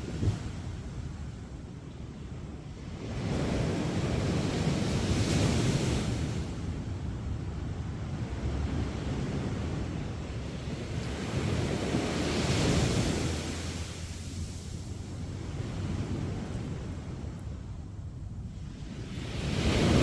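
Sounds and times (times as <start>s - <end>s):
sea surf breaking on shore: 8.5s - 17.3s, 18.7s - 20.0s.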